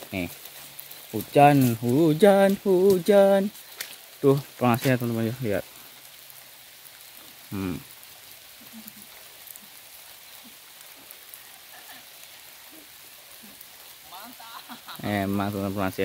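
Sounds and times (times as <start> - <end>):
raindrop ticks: 0.0 - 16.0
steady rain hiss: 0.0 - 16.0
short vocal sound: 7.5 - 7.9.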